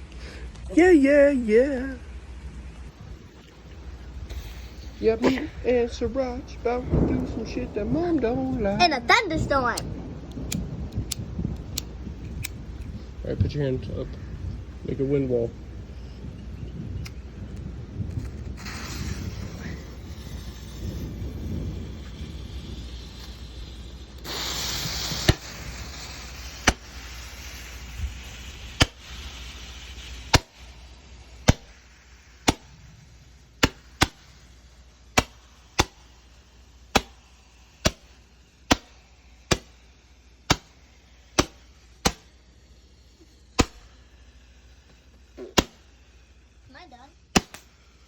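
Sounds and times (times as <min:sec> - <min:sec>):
rushing wind gust: 0:02.0 - 0:39.6
sharp clicks: 0:09.7 - 0:12.9.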